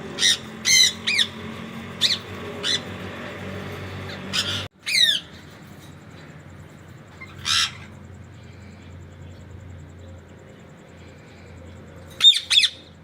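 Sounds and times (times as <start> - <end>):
parakeets squawking: 0.0 - 5.8, 7.1 - 8.1, 12.1 - 12.9.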